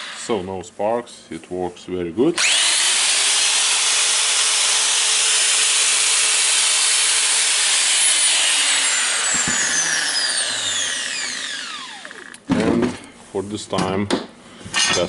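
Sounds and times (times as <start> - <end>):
angle grinder whining: 0.0 - 0.4, 2.4 - 12.5
grinder spinning down: 2.4 - 12.4.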